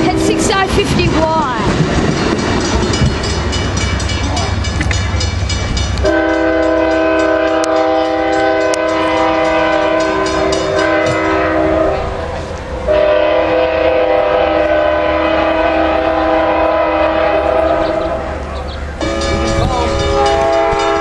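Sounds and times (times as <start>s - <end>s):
wheels clicking over rail joints: 0.0s - 13.0s
train rumbling past: 0.0s - 21.0s
train horn blast: 6.0s - 18.4s, 19.0s - 21.0s.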